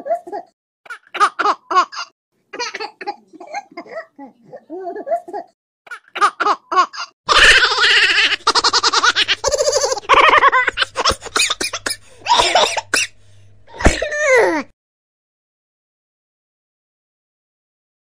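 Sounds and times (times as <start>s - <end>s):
young child laughing: 0.0s - 12.6s
steady low hum: 7.6s - 14.2s.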